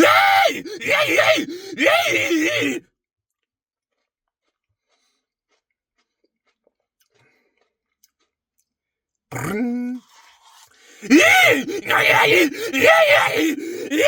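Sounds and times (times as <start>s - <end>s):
man groaning: 0.0s - 2.8s, 11.0s - 14.0s.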